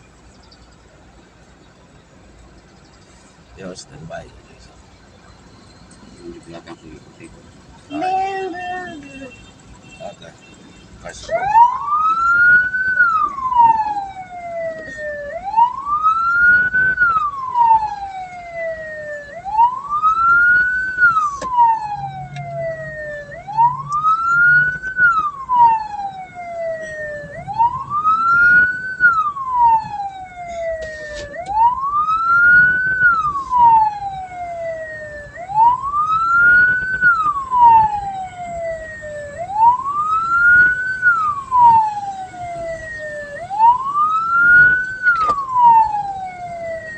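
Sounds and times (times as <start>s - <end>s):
electronic siren wailing: 11.0s - 46.9s.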